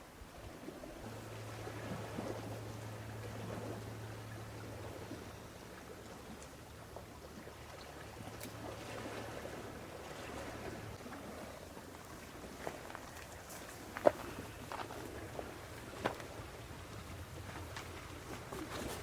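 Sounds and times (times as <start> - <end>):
low even hum: 0.0 - 19.0
soft water-like rushing: 0.0 - 19.0.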